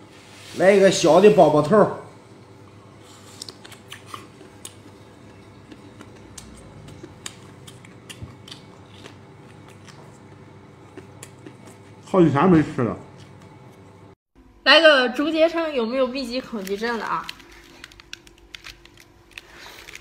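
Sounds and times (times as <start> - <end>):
person biting and chewing: 3.0 - 12.0, 17.3 - 20.0.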